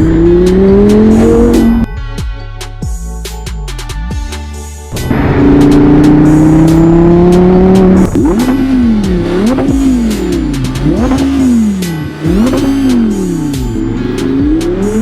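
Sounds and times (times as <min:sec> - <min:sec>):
sports car engine revving: 0:00.0 - 0:01.9, 0:04.9 - 0:15.0
music with steady beat: 0:00.0 - 0:15.0.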